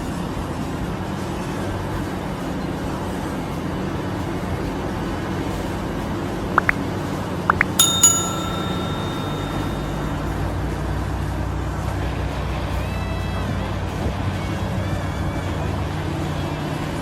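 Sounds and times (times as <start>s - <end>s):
ringing metallic strike: 7.8s - 10.9s.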